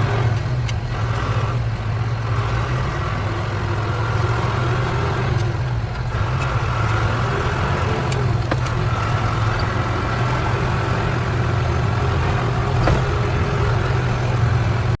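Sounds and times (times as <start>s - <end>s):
truck engine droning: 0.0s - 15.0s
faint clicks: 4.9s - 7.3s.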